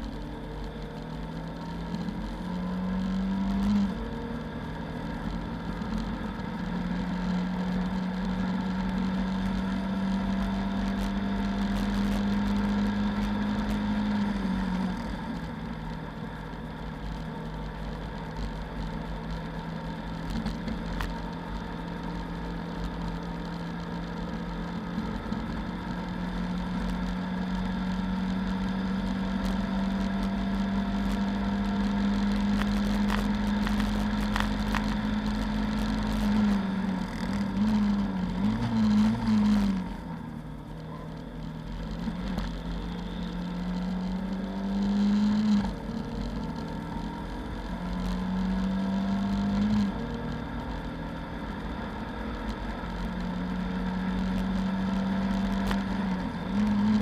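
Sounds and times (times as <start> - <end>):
car engine at high revs: 0.0 - 57.0
road and wind noise: 0.0 - 57.0.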